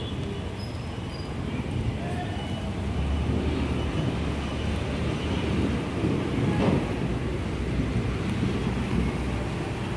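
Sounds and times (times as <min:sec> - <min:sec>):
rain falling: 0:02.7 - 0:09.9
wind buffeting the microphone: 0:03.3 - 0:09.9.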